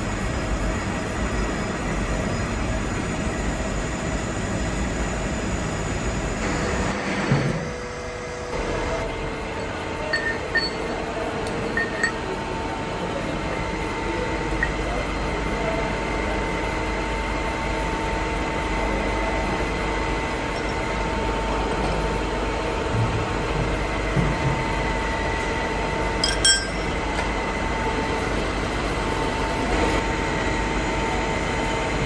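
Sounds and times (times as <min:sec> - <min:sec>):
shop machinery running: 0:00.0 - 0:32.0
light metallic clinks: 0:10.1 - 0:10.8, 0:26.2 - 0:26.9.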